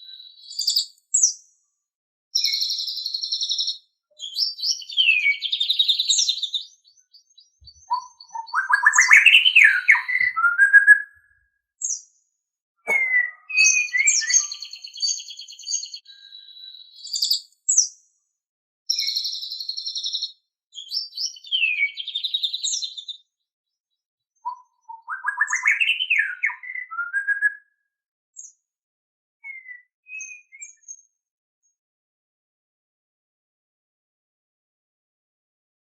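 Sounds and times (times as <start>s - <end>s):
bird singing trills and whistles: 0.0s - 1.4s, 2.4s - 12.0s, 12.9s - 18.0s, 18.9s - 23.2s, 24.4s - 27.7s, 29.4s - 31.1s.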